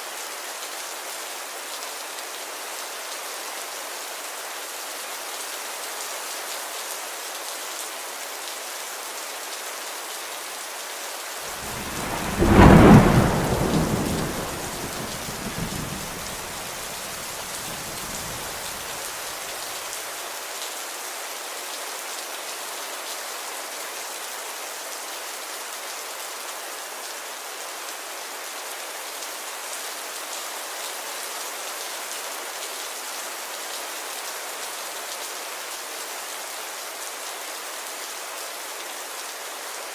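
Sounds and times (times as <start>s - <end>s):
steady rain falling: 0.0s - 39.9s
thunder clap rumbling: 11.5s - 19.0s.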